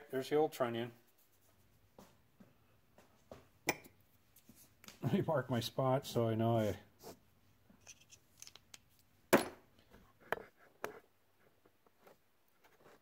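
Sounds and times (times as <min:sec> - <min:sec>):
metal parts and tools clicking: 0:07.8 - 0:09.0.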